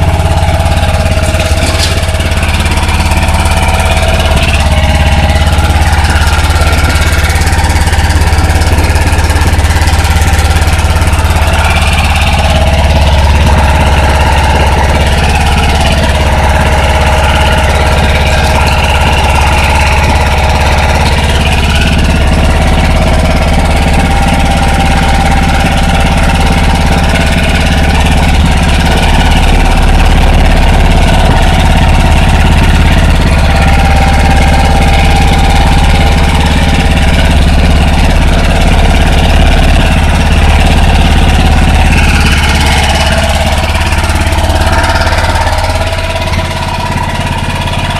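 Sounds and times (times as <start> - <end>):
snowblower engine running: 0.0 - 47.9.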